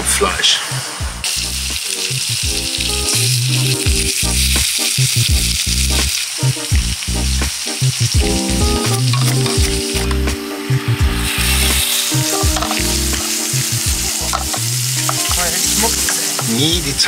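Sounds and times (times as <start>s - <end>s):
background music with low notes: 0.0s - 17.0s
food sizzling in a pan: 0.3s - 17.0s.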